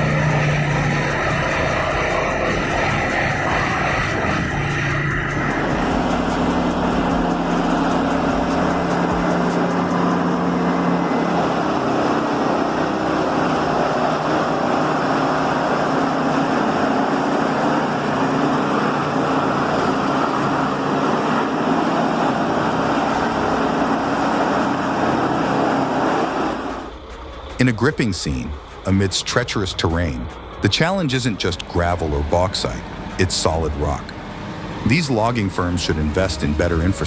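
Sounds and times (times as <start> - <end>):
heavy diesel machinery running: 0.0 - 37.0
low pitched hum: 0.0 - 37.0.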